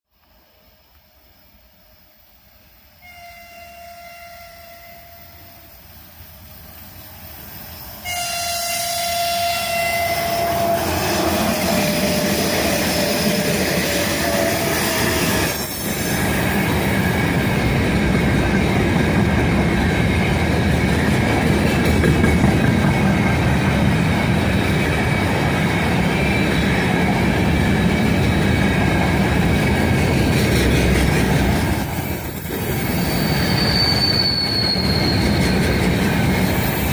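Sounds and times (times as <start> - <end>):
train wheels rumbling on rail: 0.2 - 36.9
locomotive horn blast: 3.0 - 5.7, 8.0 - 15.5
high wheel squeal: 6.9 - 17.4, 30.2 - 36.9.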